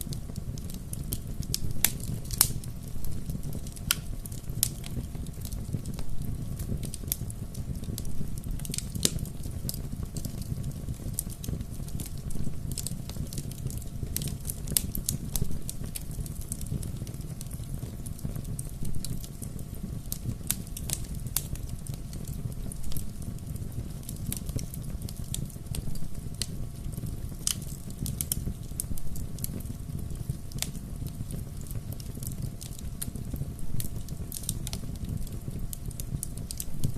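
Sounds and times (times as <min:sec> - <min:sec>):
bonfire crackling and popping: 0:00.0 - 0:36.9
low rumble of flames: 0:00.0 - 0:36.9.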